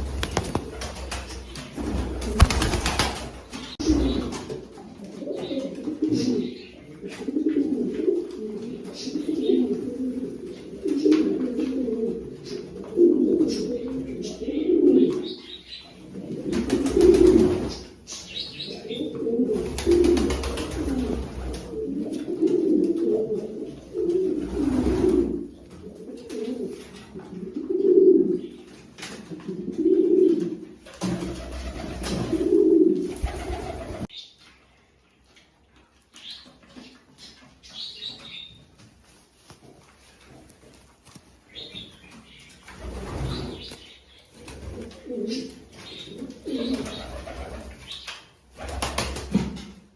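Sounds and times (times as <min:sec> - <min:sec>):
pigeons cooing: 0:00.0 - 0:28.6, 0:29.3 - 0:34.1, 0:42.7 - 0:48.9.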